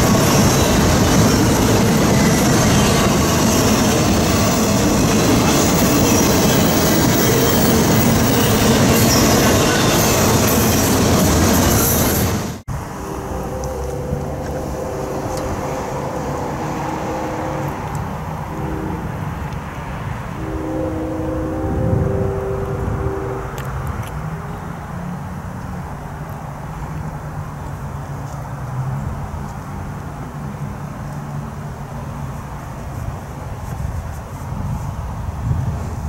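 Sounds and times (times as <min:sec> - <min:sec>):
freight train wheels rumbling: 0:00.0 - 0:26.7
faint steady tones: 0:12.7 - 0:23.8.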